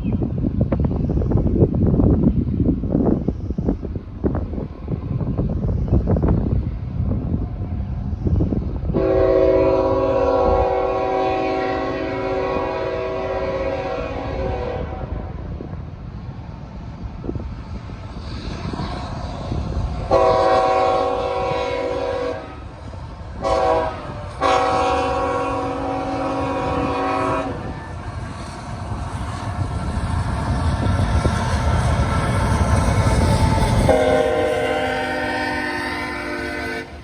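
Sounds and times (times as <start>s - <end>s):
freight train rumbling: 0.0s - 37.0s
locomotive air horn blasts: 8.9s - 15.2s, 20.1s - 22.7s, 23.4s - 27.8s, 33.8s - 37.0s.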